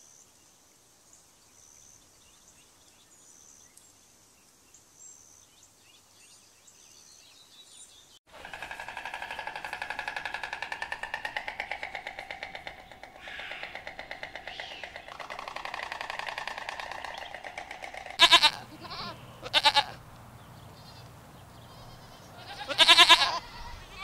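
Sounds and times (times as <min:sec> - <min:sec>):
goats bleating: 0:18.2 - 0:20.0, 0:20.8 - 0:24.0.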